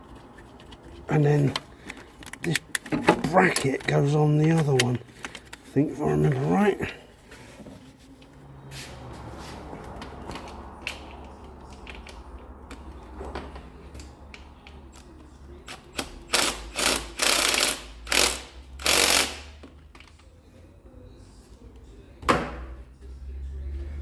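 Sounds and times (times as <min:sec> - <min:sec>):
ratchet clattering: 0:16.0 - 0:19.5.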